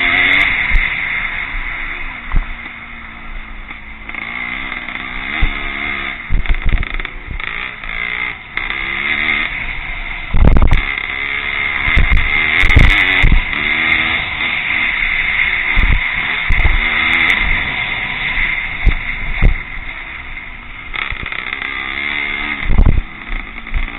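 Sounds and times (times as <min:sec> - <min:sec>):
motocross engines revving: 0:00.0 - 0:23.9
heavy low thumps: 0:10.3 - 0:10.8, 0:22.6 - 0:23.1.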